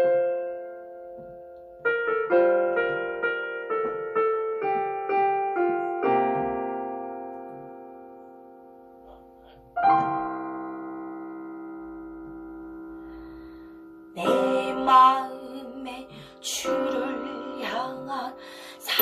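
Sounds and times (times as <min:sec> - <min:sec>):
piano chords: 0:00.0 - 0:19.0
person singing: 0:14.2 - 0:19.0.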